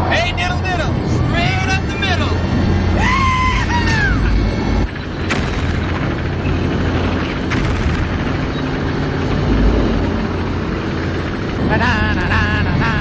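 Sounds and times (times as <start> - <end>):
heavy low rumble: 0.0 - 13.0
booming explosions: 5.2 - 10.6.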